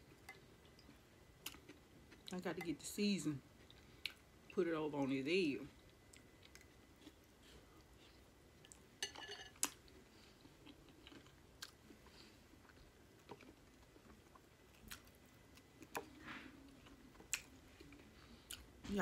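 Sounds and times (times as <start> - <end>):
chewing boiled egg: 9.5 - 18.8.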